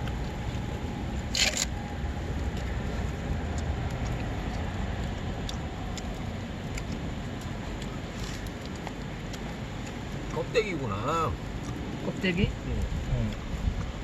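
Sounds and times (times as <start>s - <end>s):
low rumble: 0.0s - 10.3s
campfire crackling: 0.0s - 14.0s.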